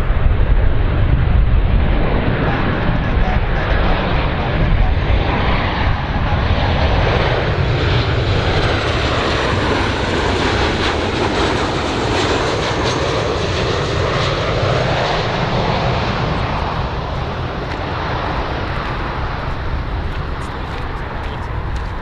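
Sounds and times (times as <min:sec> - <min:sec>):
airplane engines running: 0:00.0 - 0:22.0.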